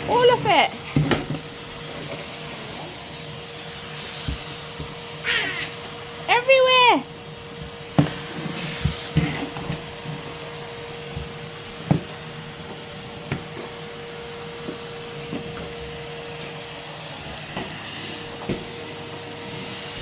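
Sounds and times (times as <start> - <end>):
vacuum cleaner running: 0.0 - 20.0
vacuum nozzle knocking on floor: 4.2 - 5.0.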